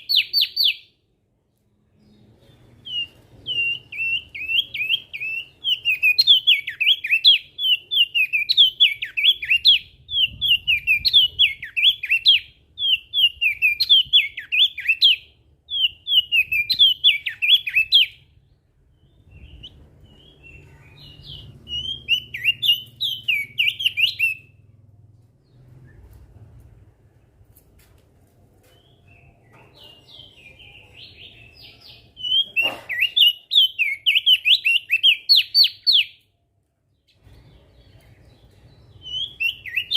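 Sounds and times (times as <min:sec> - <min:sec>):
bird singing fast chattering phrases: 0:19.1 - 0:24.6.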